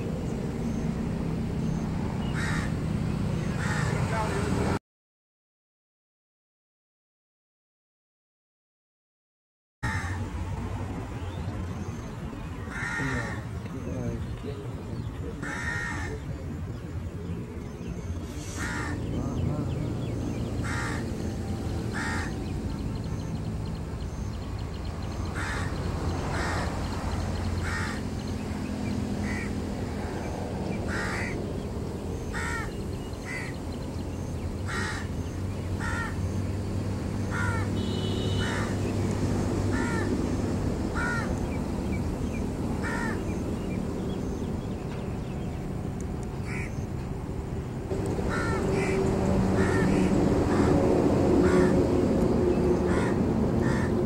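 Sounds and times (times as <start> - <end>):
bird giving harsh calls: 2.2 - 2.8, 3.5 - 4.4, 12.7 - 13.6, 15.4 - 16.3, 18.2 - 19.5, 20.4 - 21.2, 21.9 - 22.8, 29.2 - 29.6, 30.9 - 31.4, 32.3 - 33.6, 34.6 - 36.4, 37.3 - 38.8, 42.8 - 43.4, 46.4 - 46.8, 48.2 - 50.8, 52.8 - 54.0.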